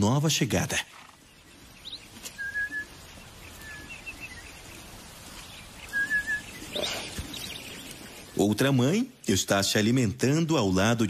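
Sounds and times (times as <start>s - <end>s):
faint outdoor background noise: 0.0s - 11.0s
bird whistling and chirping: 1.8s - 4.6s, 5.4s - 7.9s.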